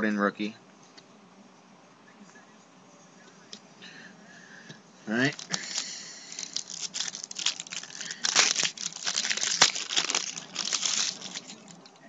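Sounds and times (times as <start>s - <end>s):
wrapper crinkling and tearing: 5.2s - 11.8s.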